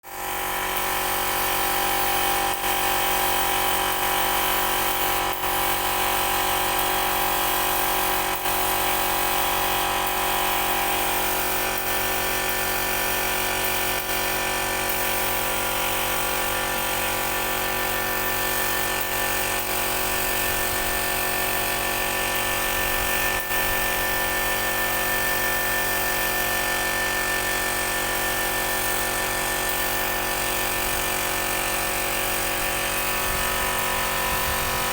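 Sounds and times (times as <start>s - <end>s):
motor-driven tool whining: 32.3s - 34.9s.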